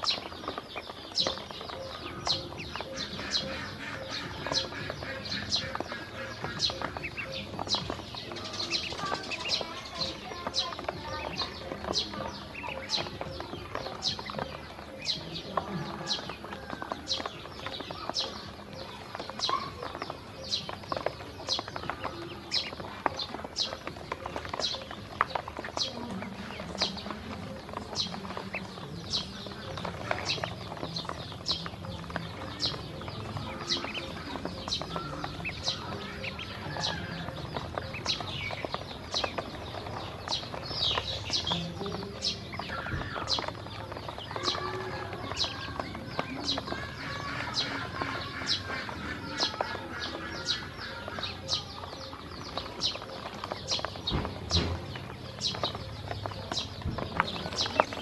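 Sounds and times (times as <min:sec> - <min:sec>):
ducklings peeping: 0:00.0 - 0:58.0.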